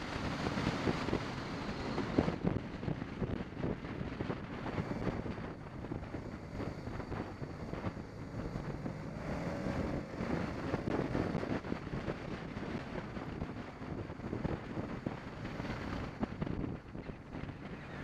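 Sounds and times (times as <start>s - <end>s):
motorcycle engine: 0.0s - 18.0s
wind buffeting microphone: 0.0s - 18.0s.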